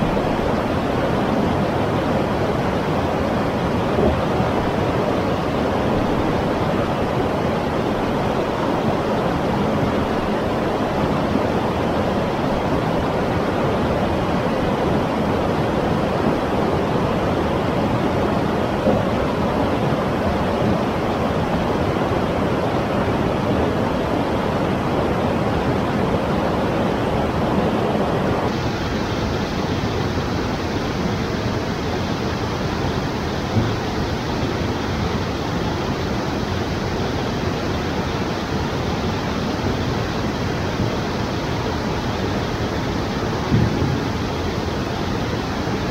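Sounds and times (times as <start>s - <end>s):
river water rushing over rapids: 0.0s - 45.9s.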